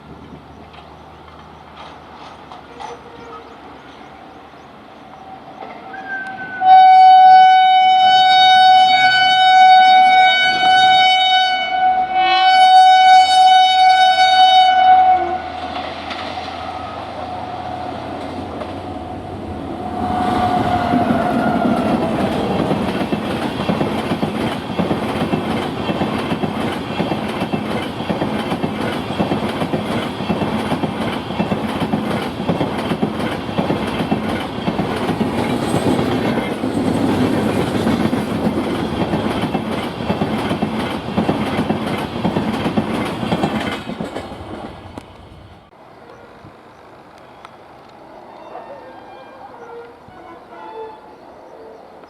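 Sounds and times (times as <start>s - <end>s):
train coaches clattering over rails: 0.3s - 3.9s, 20.4s - 45.4s
train horn: 5.7s - 18.0s, 19.8s - 22.6s, 48.3s - 51.8s.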